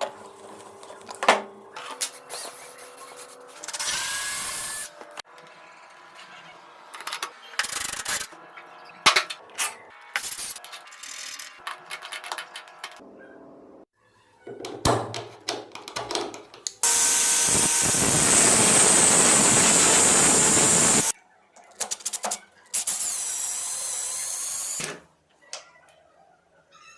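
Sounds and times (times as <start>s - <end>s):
power drill whining: 16.8s - 21.1s, 22.8s - 25.0s
power tool whirring: 16.8s - 21.1s, 22.8s - 25.0s.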